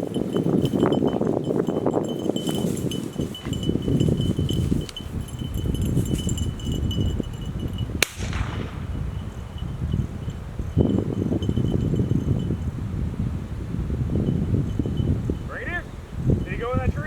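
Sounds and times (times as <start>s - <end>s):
wind buffeting microphone: 0.0s - 17.0s
gunshot: 8.0s - 9.2s.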